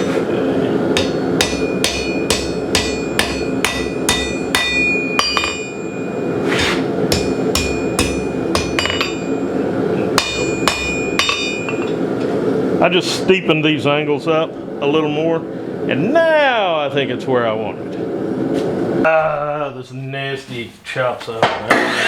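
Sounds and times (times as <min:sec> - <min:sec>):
hammer ringing on anvil: 0:00.9 - 0:12.0.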